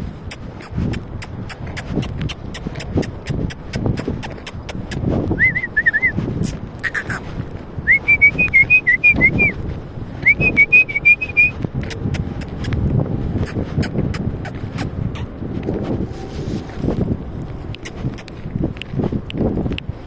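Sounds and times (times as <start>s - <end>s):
sharp clicks: 0.2s - 5.0s, 11.8s - 15.3s, 17.4s - 19.9s.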